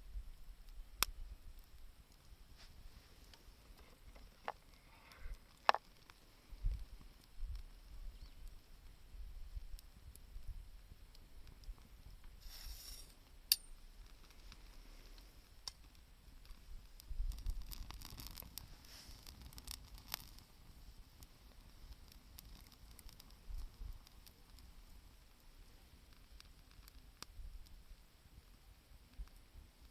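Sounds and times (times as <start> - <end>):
campfire crackling and popping: 0.0 - 29.9.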